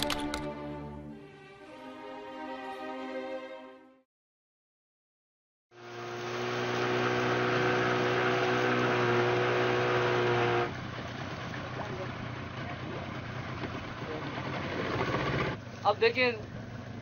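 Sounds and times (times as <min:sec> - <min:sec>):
engine running steadily: 0:05.8 - 0:17.0.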